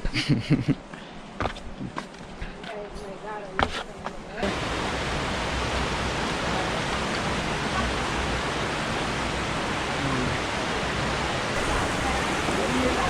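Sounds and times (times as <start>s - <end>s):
rushing water: 4.4s - 13.0s.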